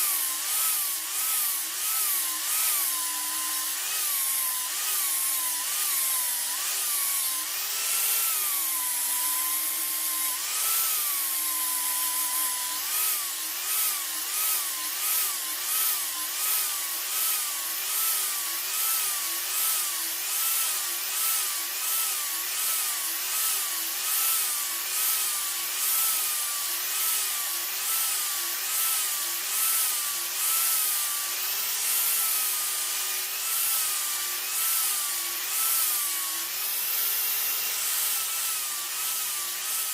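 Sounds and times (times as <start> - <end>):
power tool running: 0.0 - 39.9.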